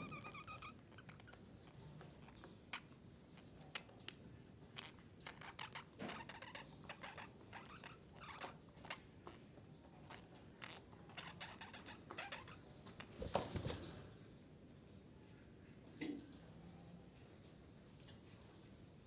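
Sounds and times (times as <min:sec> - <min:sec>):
budgerigar chirping: 0:00.0 - 0:01.3.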